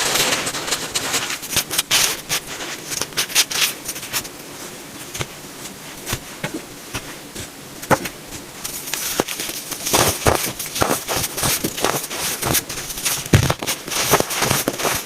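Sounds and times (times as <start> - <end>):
baking soda crunching by hand: 8.6 - 15.0.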